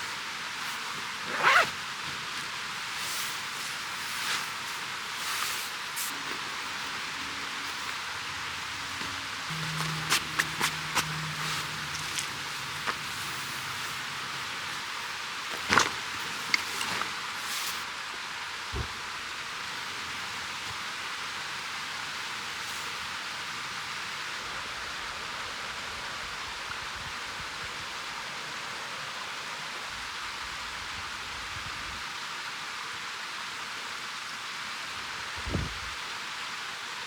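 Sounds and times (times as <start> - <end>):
stream water flowing: 0.0 - 24.2.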